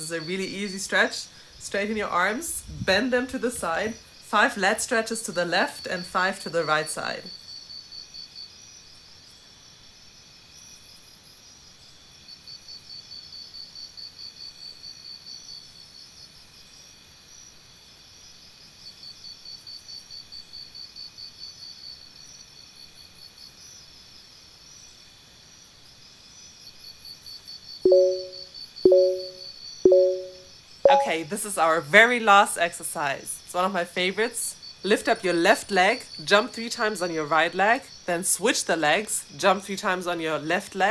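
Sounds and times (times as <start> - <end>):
short electronic beeps: 27.9 - 31.3.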